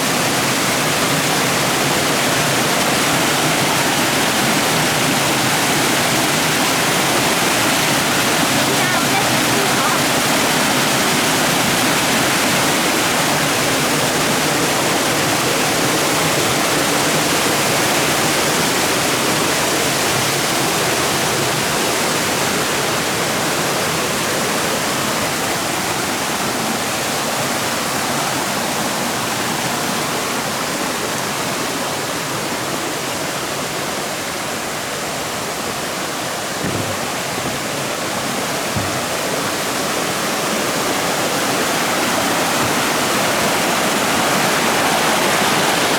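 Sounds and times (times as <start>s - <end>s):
water rushing over rocks: 0.0s - 45.9s
faint knocks: 38.7s - 39.2s.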